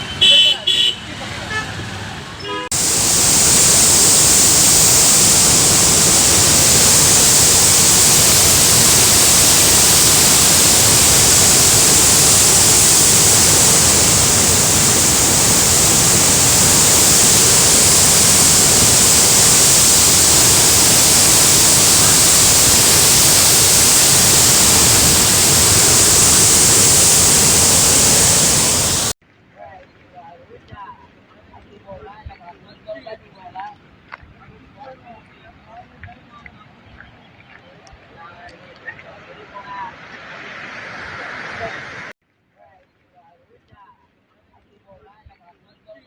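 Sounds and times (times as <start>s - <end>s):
rushing water: 2.7s - 29.2s.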